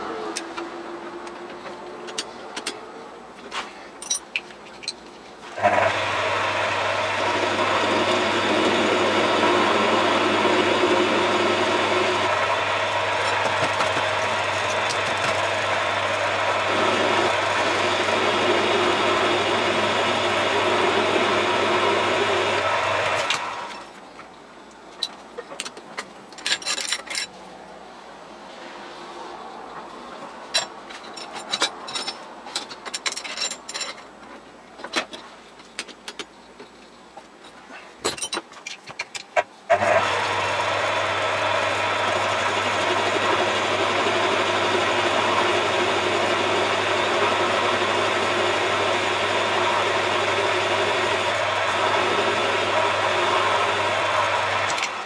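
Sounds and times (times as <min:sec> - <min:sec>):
metal tools clinking: 0:04.0 - 0:05.1, 0:26.4 - 0:27.4, 0:30.5 - 0:34.1, 0:37.4 - 0:39.3
metal lathe humming: 0:05.6 - 0:23.8, 0:39.7 - 0:55.0.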